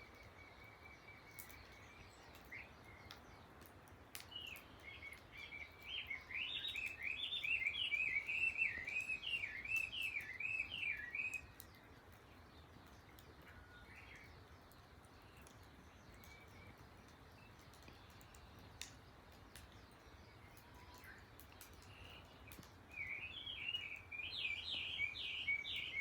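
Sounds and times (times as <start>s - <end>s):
bird singing whistled notes: 4.3s - 11.6s, 20.2s - 26.0s.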